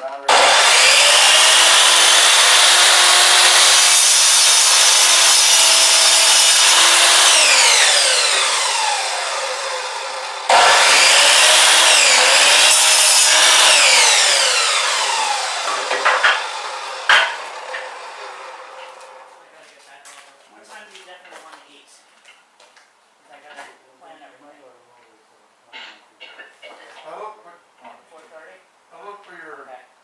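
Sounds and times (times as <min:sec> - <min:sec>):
chop saw cutting wood: 0:00.3 - 0:19.2.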